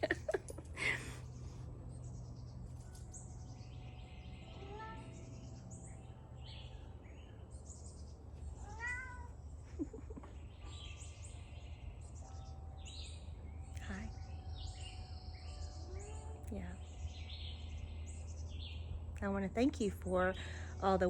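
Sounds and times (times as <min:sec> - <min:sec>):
faint bird chirps: 0:01.2 - 0:20.9
cat meowing: 0:08.6 - 0:09.4.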